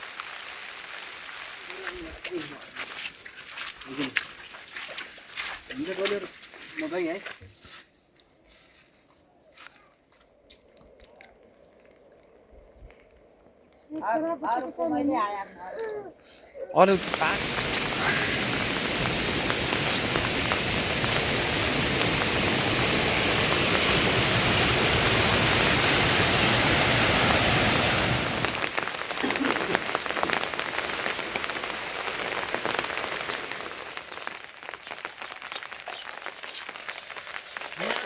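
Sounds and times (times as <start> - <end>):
heavy rain falling: 0.0 - 6.3, 16.8 - 38.0
light patter of raindrops: 0.0 - 38.0.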